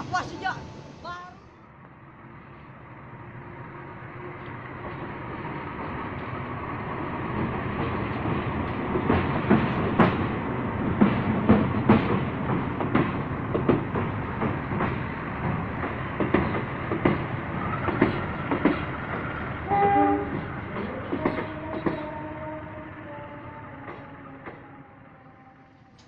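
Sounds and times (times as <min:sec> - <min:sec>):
train wheels clacking over rail joints: 0:04.4 - 0:22.2
train horn: 0:19.6 - 0:26.0.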